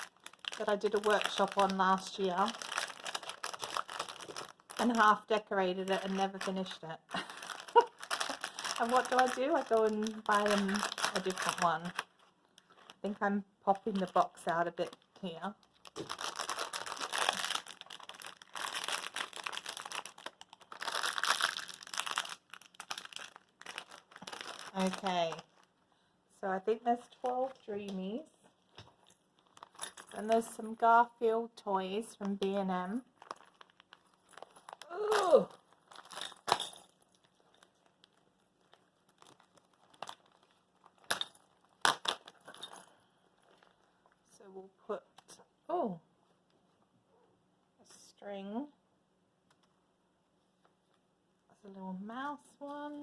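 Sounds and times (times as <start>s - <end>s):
packaging crinkling and rustling: 0.0s - 25.8s, 28.6s - 30.6s, 32.1s - 44.2s.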